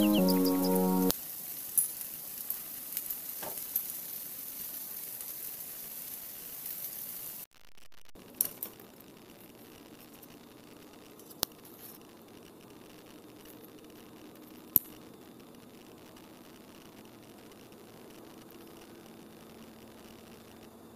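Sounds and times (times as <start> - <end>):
food sizzling in oil: 1.1 - 7.4.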